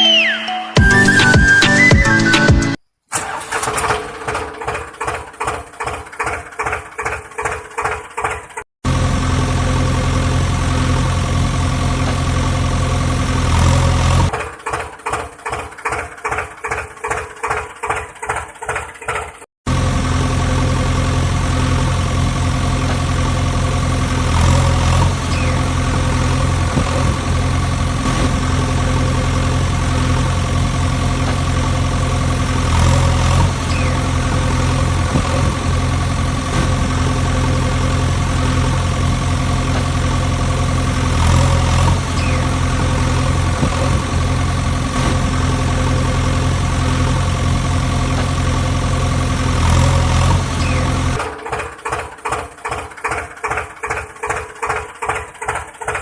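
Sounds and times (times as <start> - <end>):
tractor engine idling: 3.1 - 56.0.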